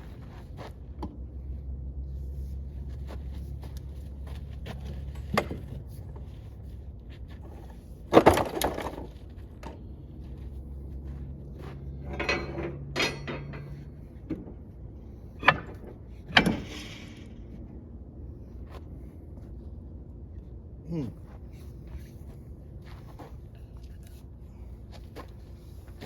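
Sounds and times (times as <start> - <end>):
low steady hum: 0.0 - 26.0
tools and metal parts clanking: 4.7 - 6.4, 7.4 - 10.0, 11.7 - 17.6.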